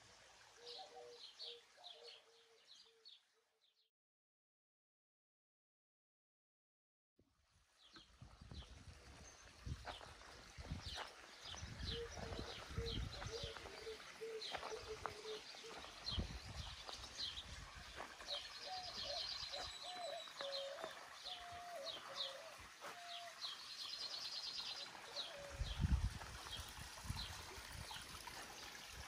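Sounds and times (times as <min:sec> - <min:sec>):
small birds chirping: 0:07.8 - 0:28.9.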